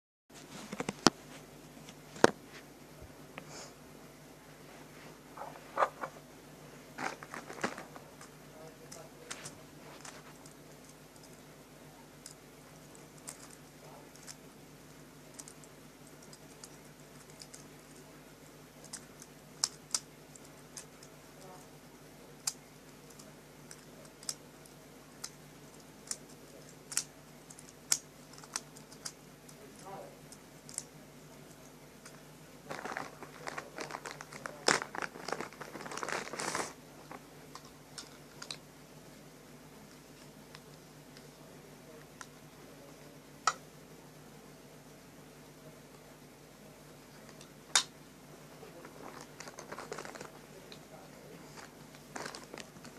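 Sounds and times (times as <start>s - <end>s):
crinkling and rustling: 0.3s - 3.1s, 4.8s - 11.4s, 30.7s - 38.6s, 48.6s - 52.9s
faint steady hum: 0.3s - 52.9s.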